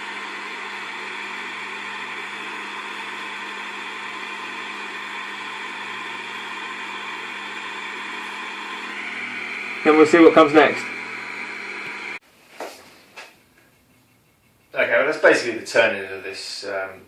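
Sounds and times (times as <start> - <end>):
workshop motor humming: 0.0 - 12.2.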